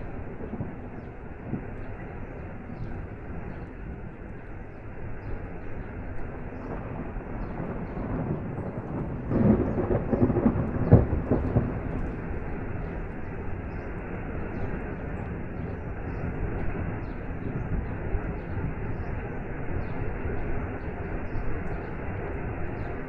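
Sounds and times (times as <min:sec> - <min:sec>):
rain: 0:00.0 - 0:23.0
thunder rumble with crack: 0:00.0 - 0:23.0.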